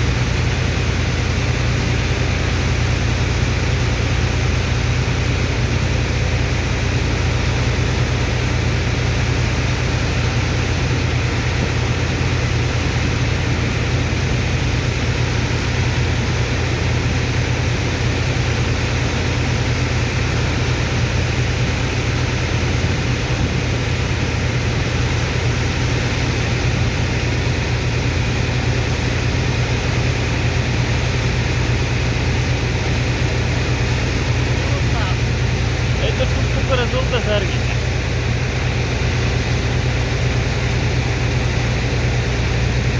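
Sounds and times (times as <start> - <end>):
water pump engine droning: 0.0 - 42.9.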